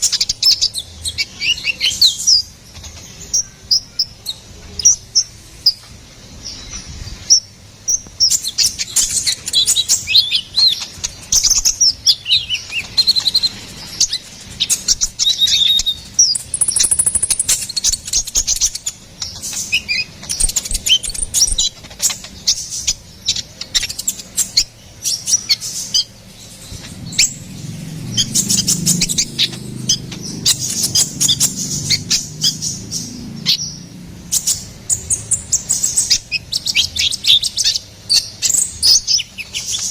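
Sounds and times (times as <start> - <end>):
small bird singing: 0.0 - 39.9
low rumble: 26.5 - 34.2.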